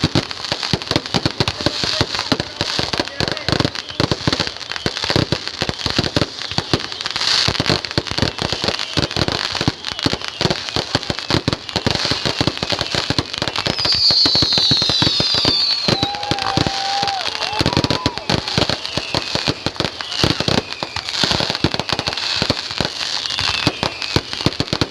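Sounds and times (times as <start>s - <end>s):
fireworks bangs and crackles: 0.0s - 24.9s
high falling whistles: 13.7s - 21.9s.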